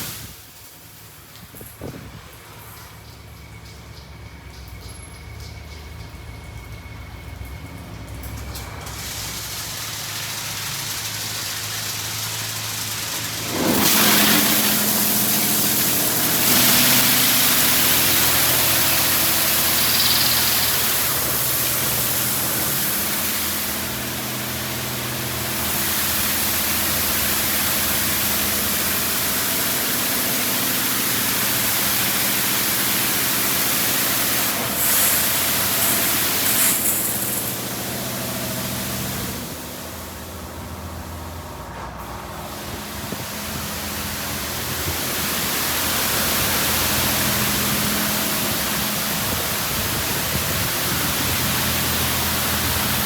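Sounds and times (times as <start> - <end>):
high-pressure water spray hissing: 0.0 - 2.2, 8.8 - 41.1, 42.3 - 53.0
machine hum: 11.8 - 53.0.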